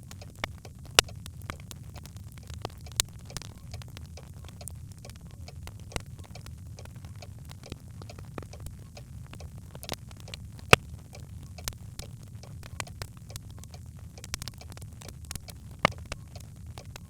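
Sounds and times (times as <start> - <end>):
fire crackling in fireplace: 0.0 - 17.0
low steady fire rumble: 0.0 - 17.0.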